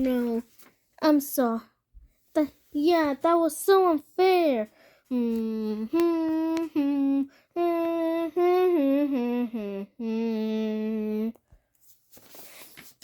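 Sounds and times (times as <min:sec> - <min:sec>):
child humming: 0:05.1 - 0:11.4.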